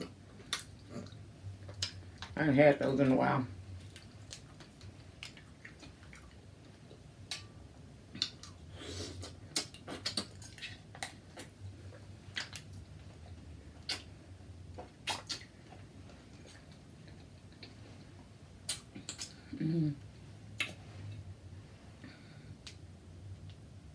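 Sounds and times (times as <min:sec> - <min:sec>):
wet squishing and chewing: 0:00.0 - 0:03.1, 0:03.7 - 0:19.5.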